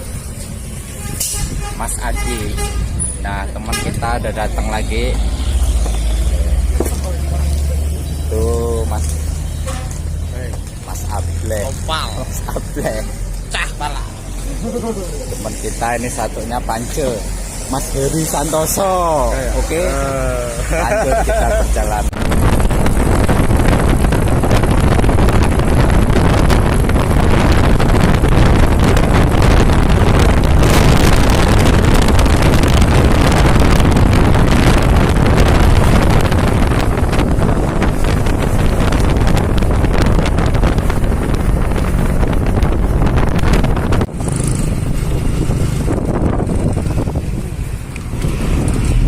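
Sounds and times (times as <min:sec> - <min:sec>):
vehicle engine and road noise: 0:00.0 - 0:49.0
wind buffeting microphone: 0:20.6 - 0:49.0.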